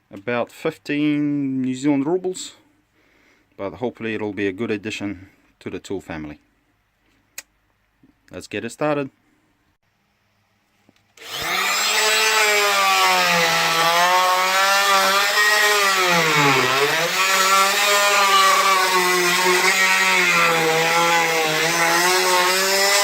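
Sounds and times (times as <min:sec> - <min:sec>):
multi-tool cutting through nails: 0:11.2 - 0:23.0.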